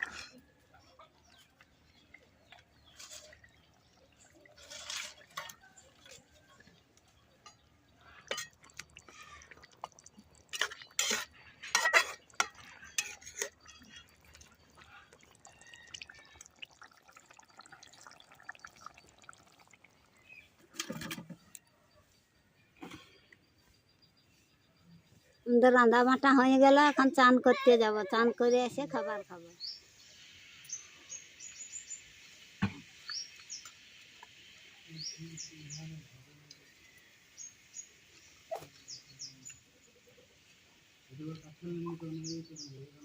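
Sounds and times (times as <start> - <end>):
water sloshing and dripping: 1.1 - 21.4.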